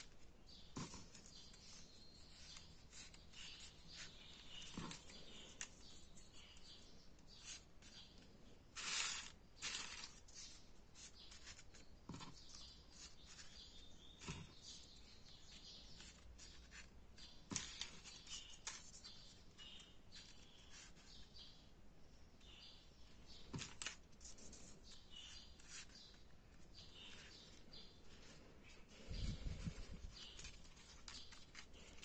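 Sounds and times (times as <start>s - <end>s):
light paper clicks: 0.0s - 6.8s, 7.4s - 13.6s, 15.5s - 21.2s, 23.4s - 32.0s
paper rustling: 0.0s - 6.8s, 8.7s - 14.6s, 15.4s - 21.2s, 23.4s - 32.0s.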